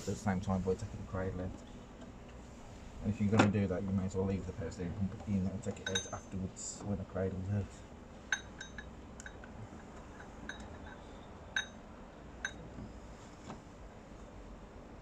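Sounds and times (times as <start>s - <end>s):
metal tools clinking on metal: 5.7s - 6.4s.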